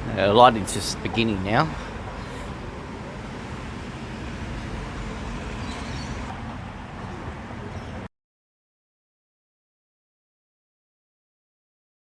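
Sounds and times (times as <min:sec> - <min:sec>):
wind buffeting microphone: 0:00.0 - 0:08.1.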